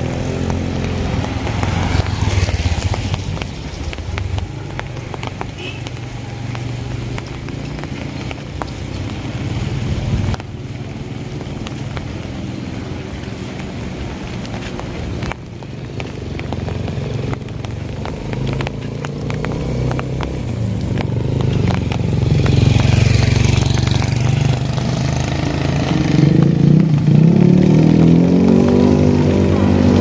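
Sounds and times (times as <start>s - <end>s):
wet road noise hiss: 0.0s - 30.0s
sharp taps: 0.4s - 9.3s, 14.4s - 24.9s.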